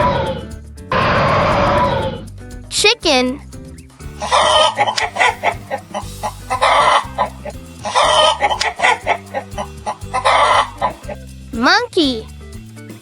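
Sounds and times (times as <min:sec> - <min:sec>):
cheerful background music: 0:00.0 - 0:13.0
chicken clucking and cackling: 0:04.2 - 0:11.2.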